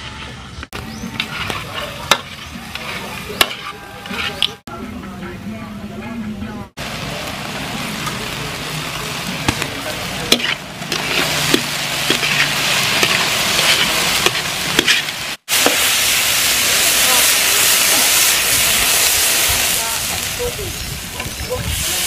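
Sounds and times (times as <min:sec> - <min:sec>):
spatula scraping and knocking pan: 0:00.7 - 0:04.6, 0:09.5 - 0:15.9
chicken sizzling in a pan: 0:06.8 - 0:22.0.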